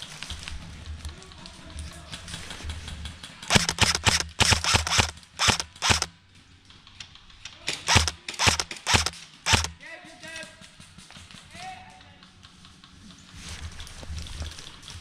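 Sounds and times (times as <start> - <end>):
airsoft guns firing: 3.4 - 6.2, 7.5 - 9.8.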